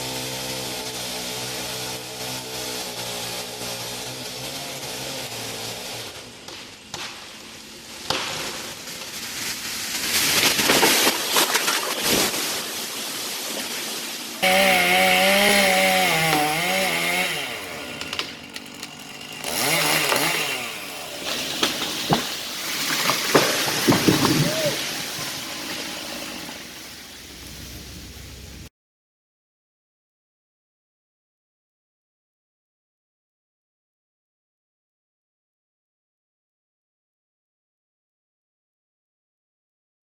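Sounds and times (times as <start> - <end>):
chainsaw cutting wood: 0.0 - 9.2, 14.4 - 27.0.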